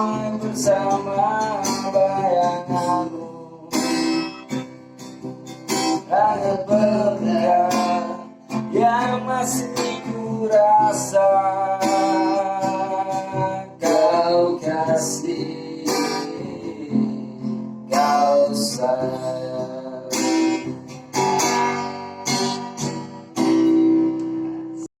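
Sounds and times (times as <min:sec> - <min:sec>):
person singing: 0:00.0 - 0:04.5, 0:05.8 - 0:21.0
acoustic guitar strumming: 0:00.0 - 0:24.9.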